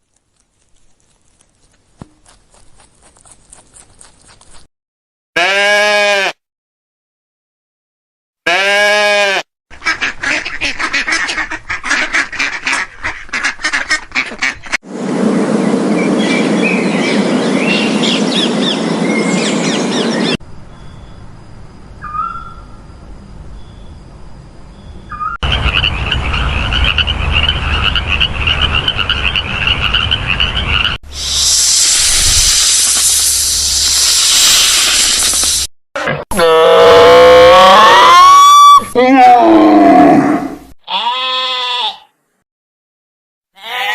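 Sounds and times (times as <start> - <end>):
ducks quacking: 9.7 - 14.8, 25.4 - 31.0
frogs croaking chorus: 25.4 - 30.9
steady loud hiss: 31.1 - 35.7.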